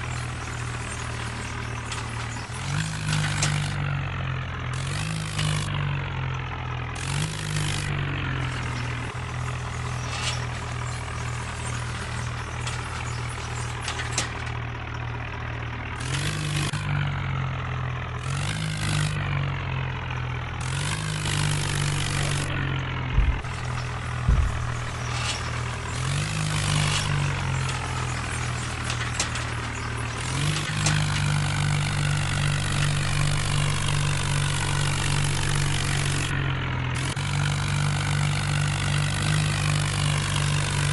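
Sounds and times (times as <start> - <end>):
tractor engine running: 0.0 - 40.9
sharp low thumps: 23.0 - 25.1.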